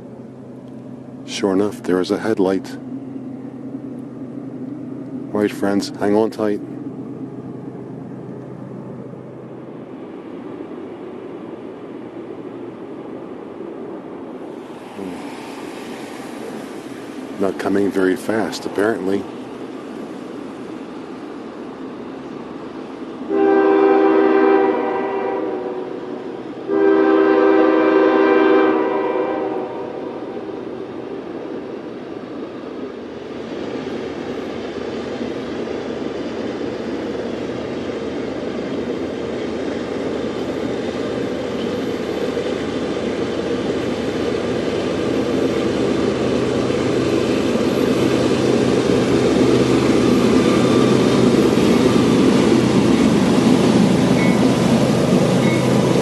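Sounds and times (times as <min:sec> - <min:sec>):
train running noise: 0:00.0 - 0:56.0
locomotive air horn blasts: 0:23.3 - 0:30.5.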